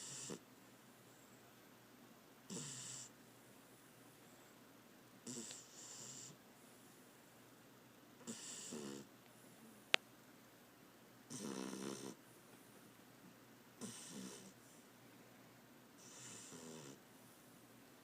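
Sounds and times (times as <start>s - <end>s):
dog snoring: 0.0s - 0.4s, 2.5s - 3.2s, 5.2s - 6.4s, 8.2s - 9.8s, 11.3s - 12.2s, 13.8s - 14.6s, 16.0s - 17.0s.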